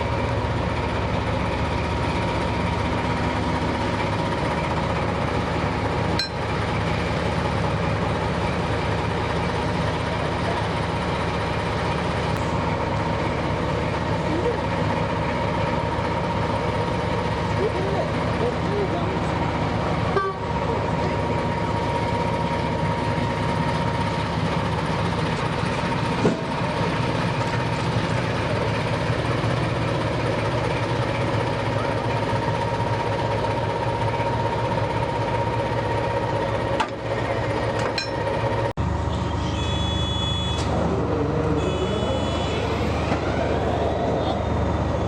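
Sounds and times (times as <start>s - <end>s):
diesel locomotive engine running: 0.0s - 45.0s
locomotive horn blasts: 20.1s - 20.5s, 39.4s - 40.7s, 41.6s - 42.8s.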